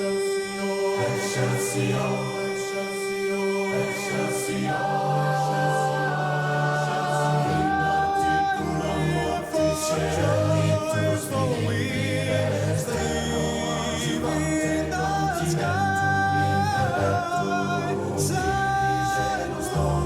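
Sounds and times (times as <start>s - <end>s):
choir singing over loudspeakers: 0.0s - 20.0s.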